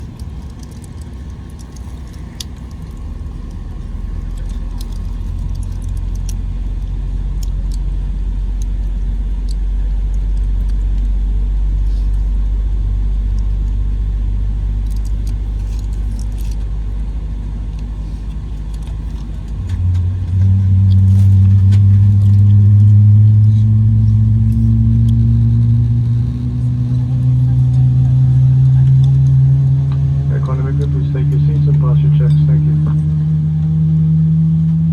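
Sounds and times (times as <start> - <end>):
small rattles and clicks: 0.0 - 7.9, 14.8 - 16.7
airliner cabin rumble: 0.0 - 34.9.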